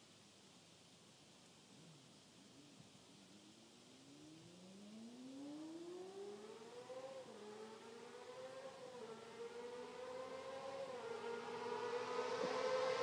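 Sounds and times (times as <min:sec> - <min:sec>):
motorcycle accelerating: 0:04.1 - 0:13.0.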